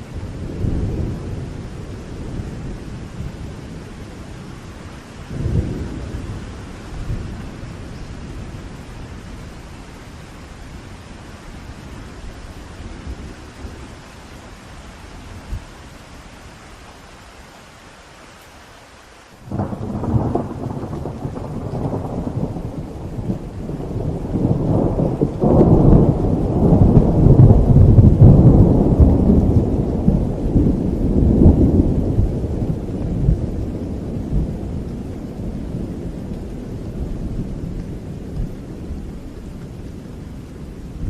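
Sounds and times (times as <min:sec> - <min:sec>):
steady rain: 0:00.0 - 0:41.0
rolling thunder: 0:05.2 - 0:09.4, 0:19.5 - 0:41.0.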